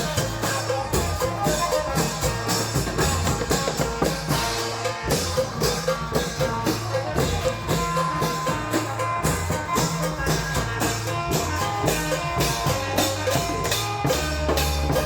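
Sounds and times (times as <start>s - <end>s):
drum band playing: 0.0s - 15.0s.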